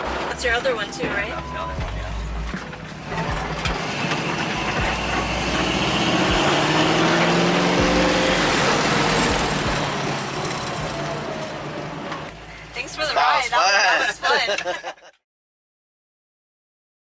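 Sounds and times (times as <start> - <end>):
car engine accelerating: 0.0 - 13.2
wind and road noise: 0.0 - 14.6.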